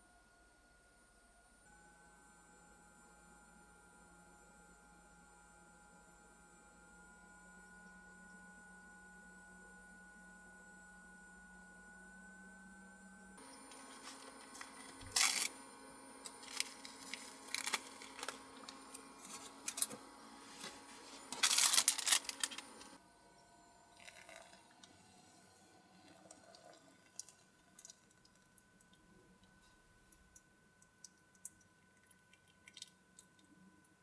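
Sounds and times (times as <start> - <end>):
rustling and crinkling handling: 13.4 - 23.0.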